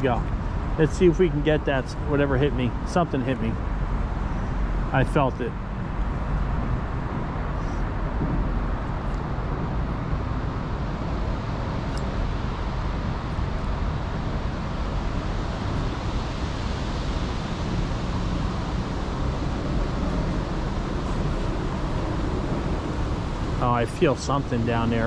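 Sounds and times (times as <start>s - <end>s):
wind on microphone: 5.6s - 25.0s.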